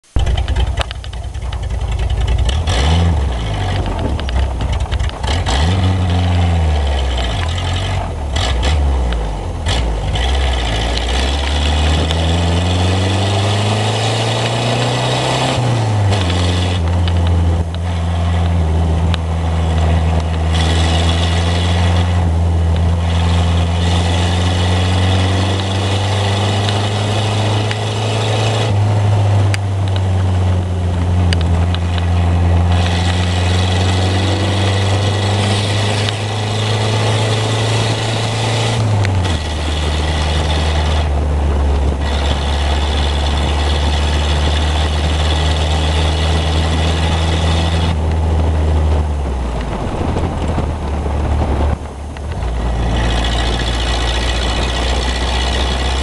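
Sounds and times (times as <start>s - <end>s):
car engine without muffler: 0.0s - 56.0s.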